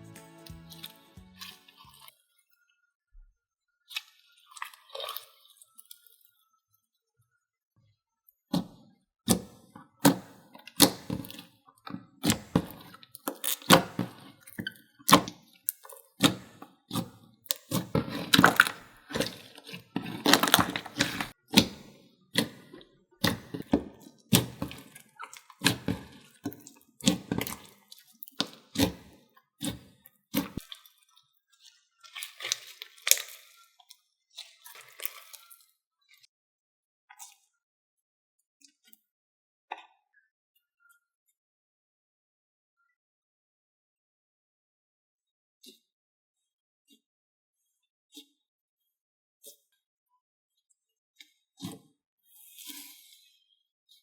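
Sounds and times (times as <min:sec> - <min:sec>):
slime squishes: 0:12.2 - 0:35.6.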